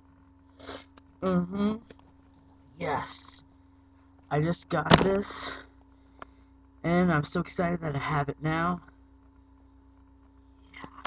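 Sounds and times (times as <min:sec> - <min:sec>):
faint electrical hum: 0:00.0 - 0:11.0
person saying yeah: 0:02.8 - 0:03.4.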